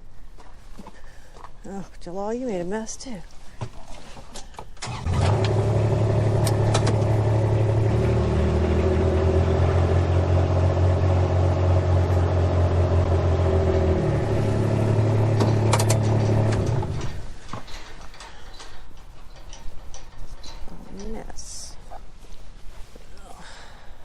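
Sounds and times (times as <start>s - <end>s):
engine running: 4.8s - 17.3s.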